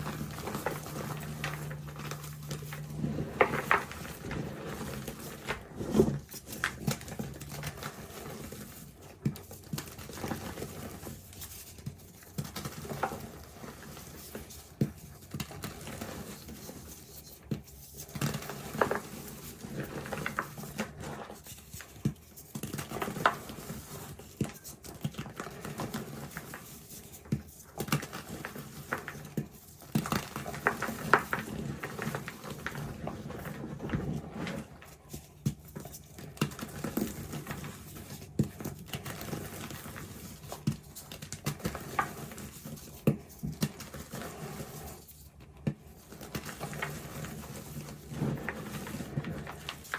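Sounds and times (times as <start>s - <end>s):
chalk being crushed: 0.0s - 11.2s.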